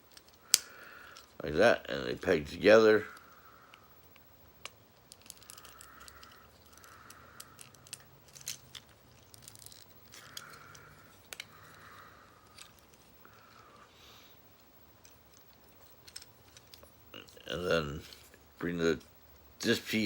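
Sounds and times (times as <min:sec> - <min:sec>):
plastic toy parts clicking: 0:00.1 - 0:01.3, 0:03.2 - 0:13.6, 0:14.6 - 0:17.4.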